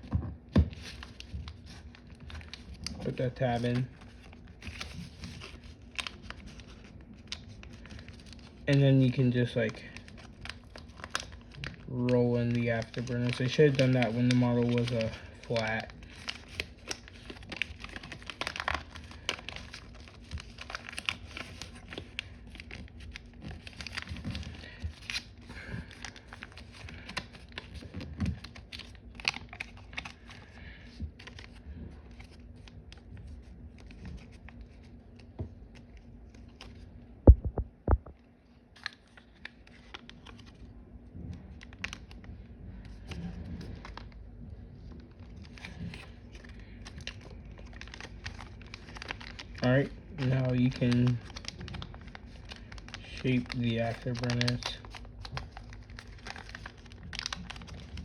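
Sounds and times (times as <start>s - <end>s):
paper rustling and crinkling: 0.0s - 37.5s, 38.7s - 58.0s.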